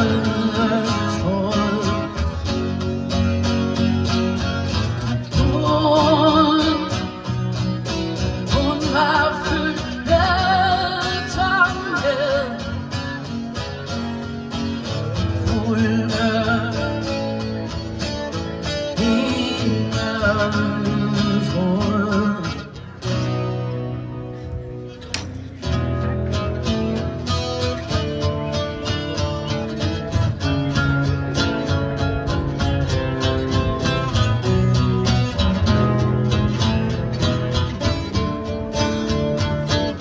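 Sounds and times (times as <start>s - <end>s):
live band guitar music: 0.0s - 40.0s.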